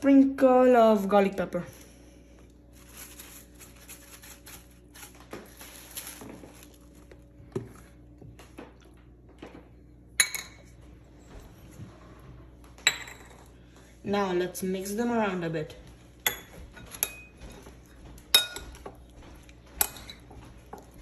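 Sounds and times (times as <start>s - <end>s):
utensils and dishes clinking: 16.2s - 19.1s.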